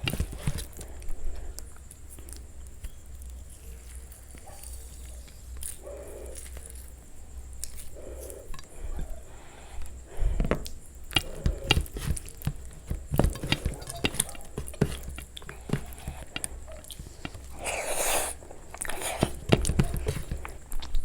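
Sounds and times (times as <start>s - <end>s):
chewing and biting: 10.6s - 21.0s.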